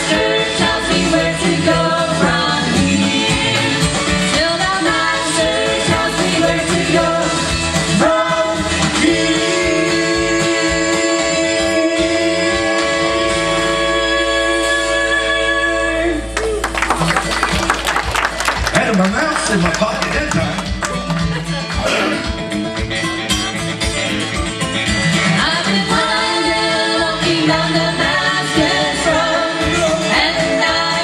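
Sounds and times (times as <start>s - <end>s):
gospel group singing in harmony: 0.0s - 16.5s, 25.2s - 31.0s
musical backing: 0.0s - 31.0s.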